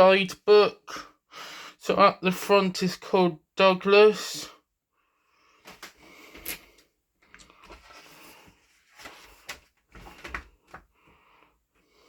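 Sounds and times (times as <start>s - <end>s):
paper pages rustling: 5.7s - 11.0s.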